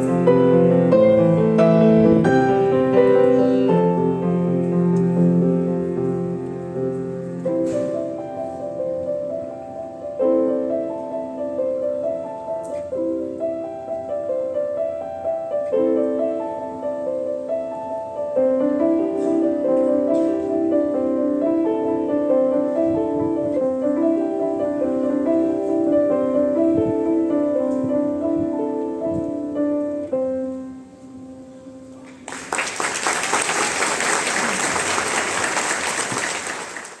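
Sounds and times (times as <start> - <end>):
solo piano: 0.0 - 37.0
audience applause: 32.0 - 37.0.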